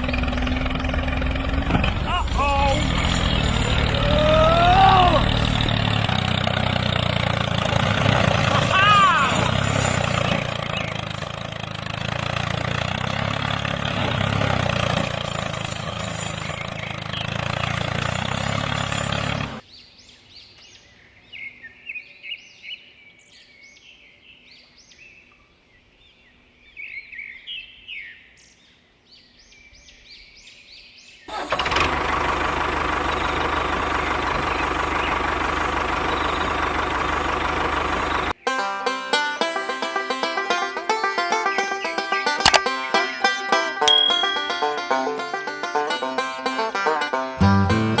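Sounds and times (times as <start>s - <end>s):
birds chirping: 0.0s - 12.1s, 15.3s - 31.4s, 34.2s - 35.4s, 40.8s - 45.4s.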